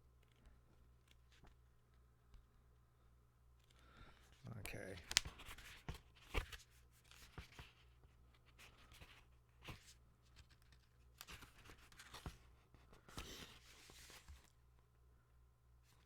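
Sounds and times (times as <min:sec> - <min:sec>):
low room hum: 0:00.0 - 0:16.0
paper pages rustling and turning: 0:04.8 - 0:14.6.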